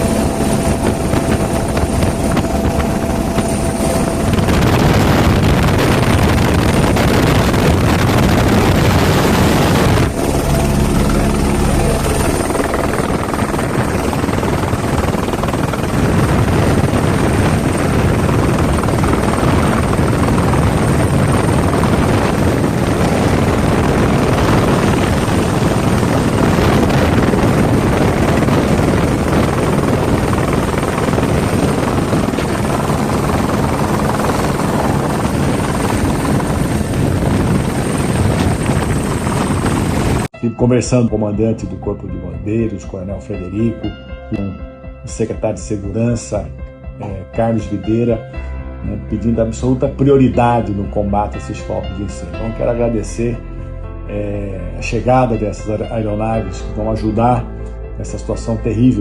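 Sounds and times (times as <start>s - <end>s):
helicopter rotor and engine: 0.0s - 40.3s.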